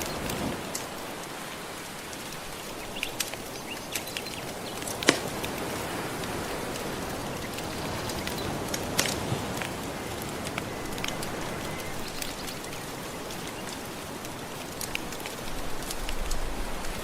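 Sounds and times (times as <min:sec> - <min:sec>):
ocean waves washing: 0:00.0 - 0:17.0
wood fire crackling: 0:00.0 - 0:17.0.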